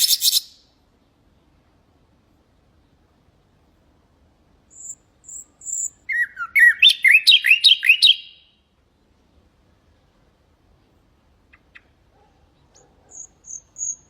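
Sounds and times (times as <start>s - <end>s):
nightingale singing: 0.0s - 0.7s, 4.7s - 8.7s, 12.6s - 14.0s.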